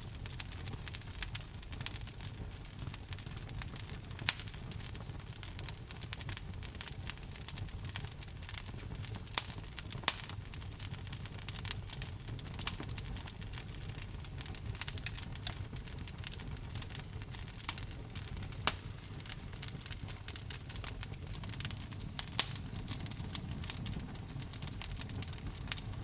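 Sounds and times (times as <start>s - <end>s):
log fire crackling: 0.0s - 26.0s
sharp pops and snaps: 18.4s - 24.0s.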